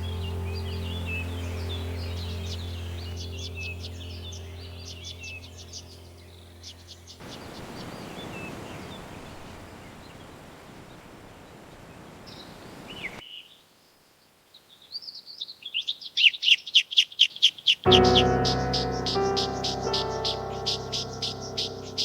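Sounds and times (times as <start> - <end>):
bird chirping: 14.6 - 22.0
rushing ambient noise: 17.9 - 22.0.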